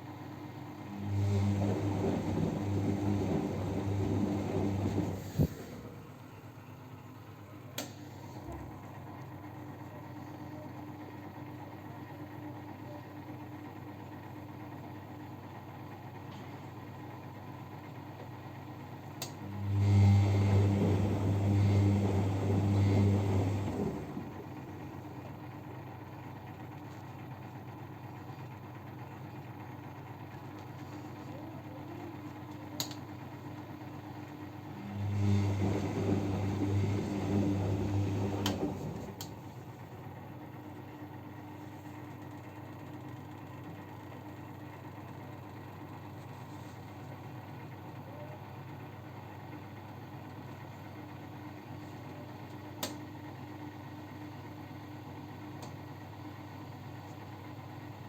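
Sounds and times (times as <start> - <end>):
washing machine drum motor humming: 0.0 - 11.8, 13.7 - 58.0.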